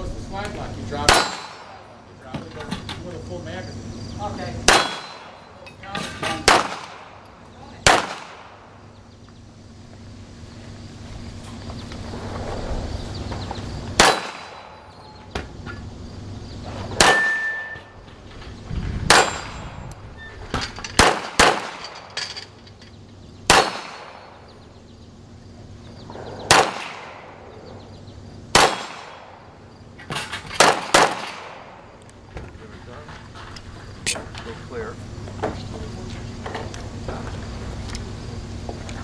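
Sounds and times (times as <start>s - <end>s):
pistol shots: 1.0s - 1.8s, 4.6s - 5.4s, 6.3s - 7.2s, 7.8s - 8.8s, 14.0s - 14.8s, 17.0s - 17.8s, 19.1s - 19.7s, 21.0s - 22.1s, 23.5s - 24.4s, 26.4s - 27.4s, 28.5s - 29.4s, 30.6s - 31.8s
bullets clanging on steel: 1.0s - 3.0s, 4.7s - 8.6s, 17.0s - 18.1s, 19.1s - 24.4s.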